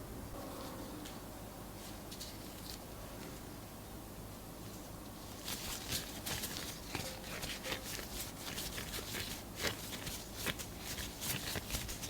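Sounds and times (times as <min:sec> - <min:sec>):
dough being handled: 0:04.6 - 0:12.0.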